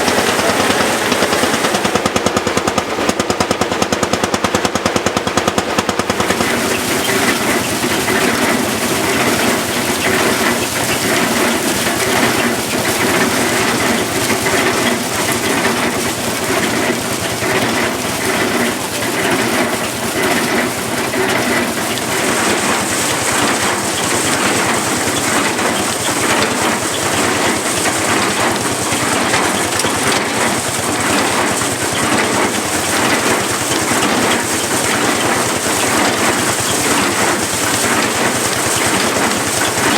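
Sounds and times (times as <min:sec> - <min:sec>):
single-cylinder engine beat: 0:00.0 - 0:39.9
threshing machine rattling: 0:00.0 - 0:39.9.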